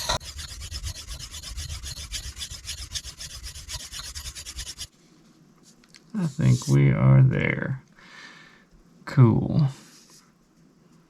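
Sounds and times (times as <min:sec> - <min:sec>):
knife rasping on sharpening stone: 0:00.0 - 0:04.9.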